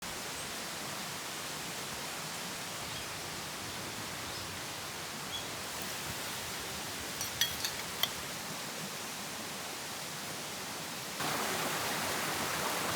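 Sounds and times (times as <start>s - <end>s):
woodland ambient hiss: 0.0s - 12.9s.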